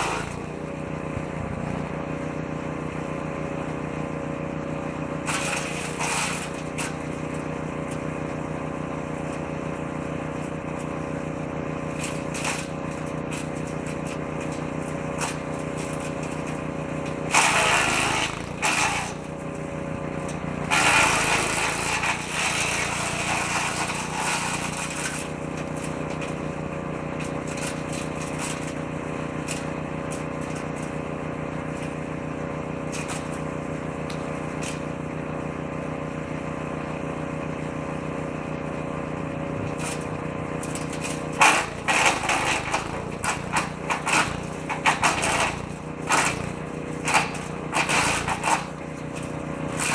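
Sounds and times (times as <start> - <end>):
woodchipper engine running: 0.0 - 49.9
branches being chipped: 11.8 - 31.1.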